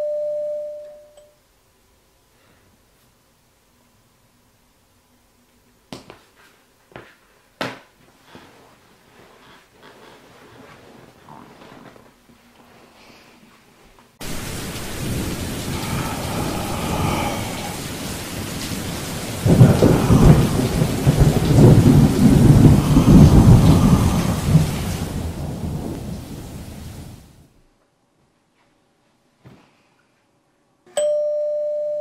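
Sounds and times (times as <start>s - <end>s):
rolling thunder: 14.2s - 27.4s
rain: 14.2s - 27.6s.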